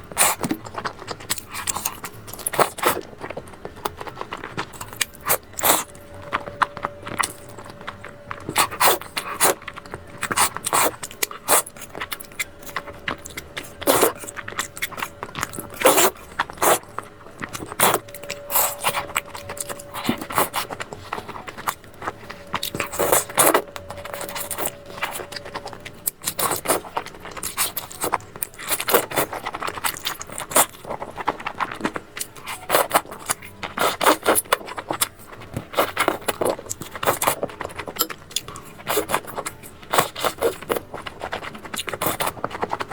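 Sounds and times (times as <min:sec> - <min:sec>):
chewing and mouth noises: 0:00.0 - 0:42.9
faint steady tone: 0:05.4 - 0:26.1.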